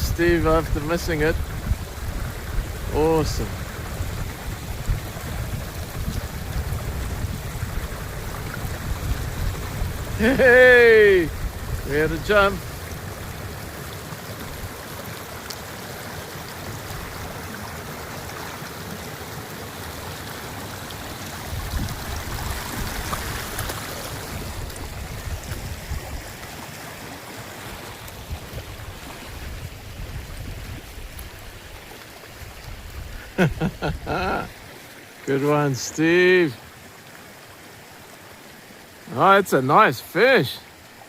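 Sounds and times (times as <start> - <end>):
wind rumble on microphone: 0.0 - 13.8, 21.4 - 26.4, 28.1 - 34.5
water rushing: 0.0 - 41.0.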